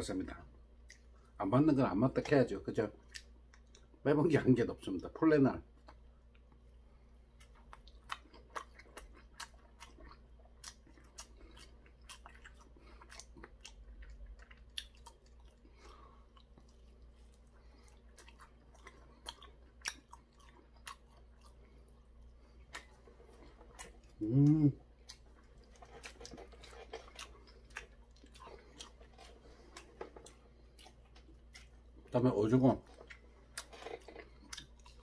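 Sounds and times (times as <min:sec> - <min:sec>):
steady low hum: 0:00.0 - 0:35.0
crunchy chewing: 0:07.3 - 0:35.0.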